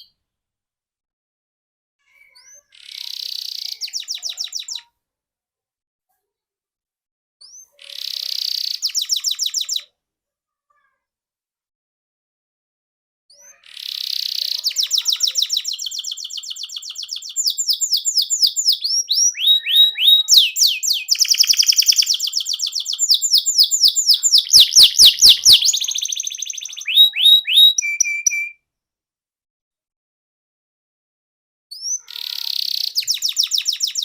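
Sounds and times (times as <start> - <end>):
canary singing trills: 2.4 - 4.9, 7.5 - 9.9, 13.4 - 28.6, 31.7 - 34.0.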